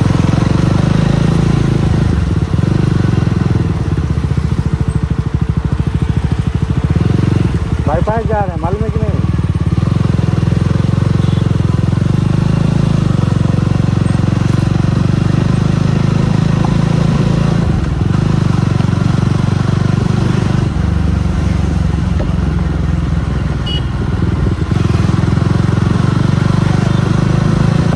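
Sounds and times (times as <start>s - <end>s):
motorcycle engine running: 0.0s - 27.9s.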